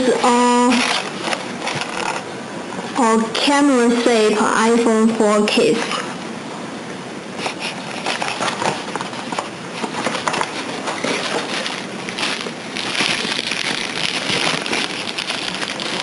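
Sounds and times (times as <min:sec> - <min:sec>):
plastic packaging crinkling: 0:00.0 - 0:02.3, 0:07.4 - 0:16.0.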